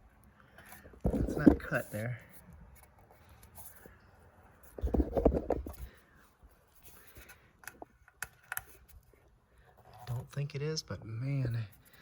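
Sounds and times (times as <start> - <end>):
exhaust pipe scraping and rubbing: 0.6 - 4.0, 4.6 - 7.4.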